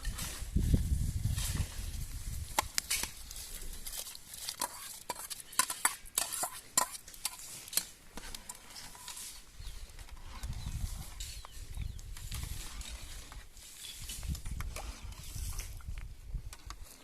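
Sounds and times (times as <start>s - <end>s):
clicks and knocks of hard objects: 3.9s - 9.2s.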